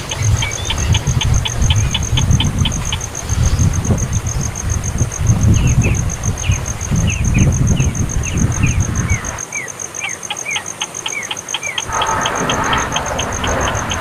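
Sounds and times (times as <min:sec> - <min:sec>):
rapid high pulsing: 0:00.0 - 0:03.4, 0:10.6 - 0:14.0
baby bird chirping: 0:00.0 - 0:03.7, 0:05.6 - 0:14.0
low rumble: 0:11.9 - 0:14.0.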